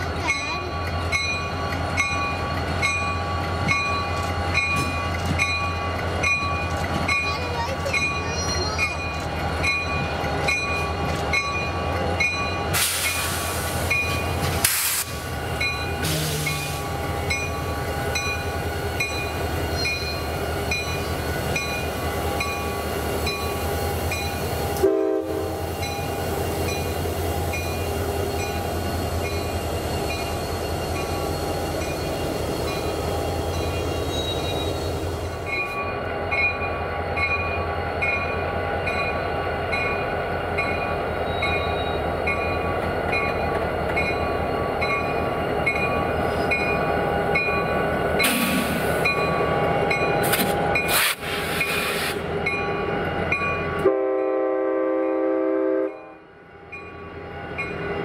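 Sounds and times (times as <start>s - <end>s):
diesel locomotive rumble: 0.0s - 58.0s
train wheels on rail: 0.0s - 58.0s
short hiss: 14.6s - 15.2s.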